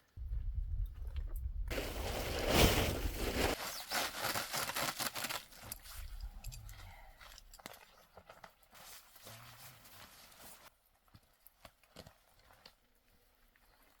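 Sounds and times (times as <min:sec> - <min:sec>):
low rumble: 0:00.2 - 0:03.2
crunching and scraping: 0:00.9 - 0:10.7.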